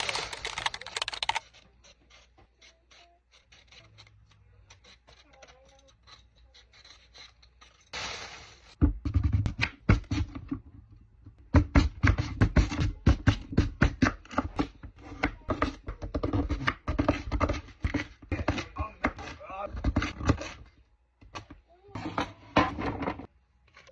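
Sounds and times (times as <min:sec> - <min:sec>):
short hiss: 0:08.0 - 0:08.8.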